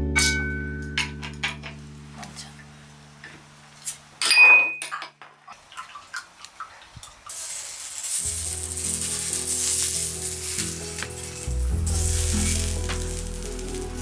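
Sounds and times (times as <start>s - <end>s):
background music: 0.0s - 3.3s, 8.1s - 14.0s
food sizzling on a grill pan: 7.3s - 14.0s.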